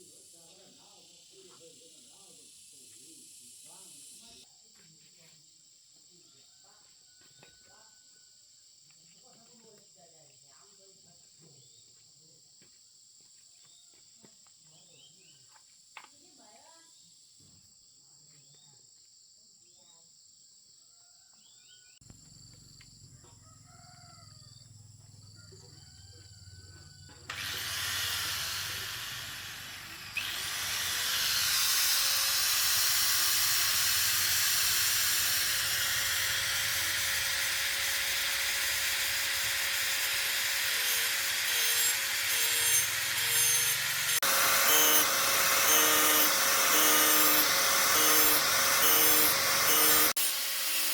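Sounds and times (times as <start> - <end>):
power tool grinding: 27.1 - 50.9.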